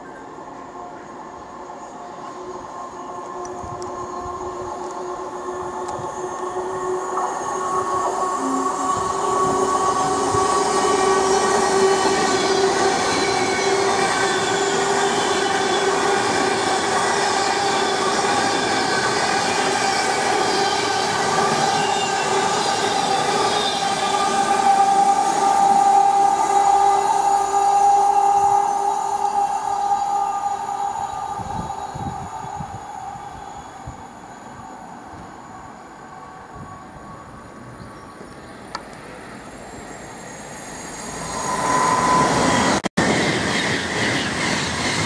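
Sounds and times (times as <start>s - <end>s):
train running past: 0.0s - 45.0s
high whining tones: 38.8s - 45.0s.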